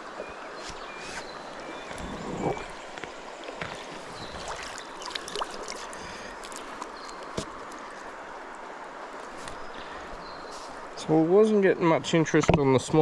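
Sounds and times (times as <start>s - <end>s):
river water rushing over stones: 0.0s - 11.8s.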